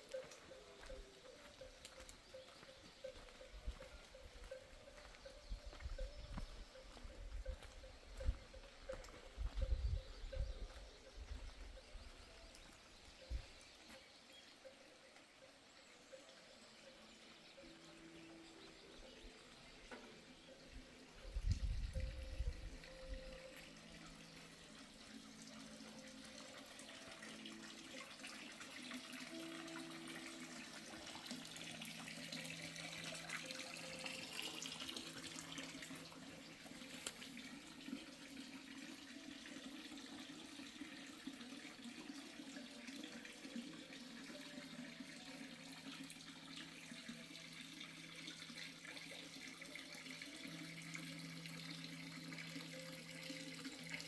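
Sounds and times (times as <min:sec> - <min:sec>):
running water: 0:00.0 - 0:54.0.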